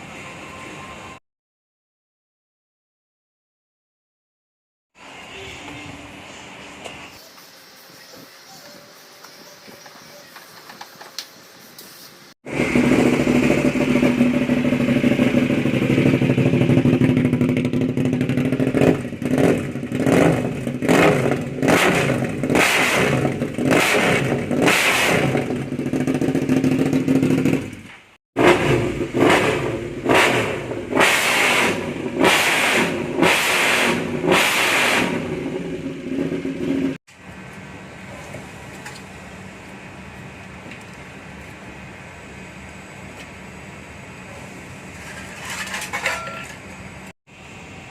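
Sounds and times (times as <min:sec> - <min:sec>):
motorcycle engine idling and revving: 0:12.4 - 0:47.9.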